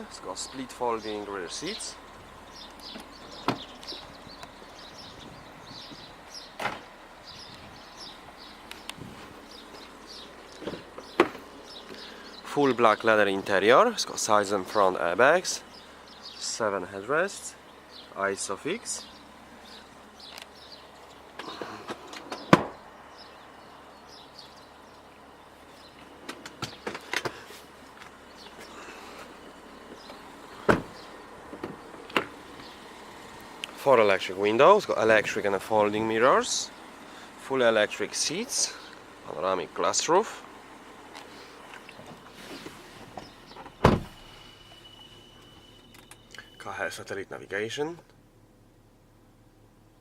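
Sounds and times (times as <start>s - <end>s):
birds chirping: 0.0s - 48.0s
car parts thudding shut: 2.8s - 3.8s, 6.6s - 6.9s, 10.6s - 11.5s, 21.4s - 22.8s, 30.0s - 32.4s, 43.1s - 44.3s.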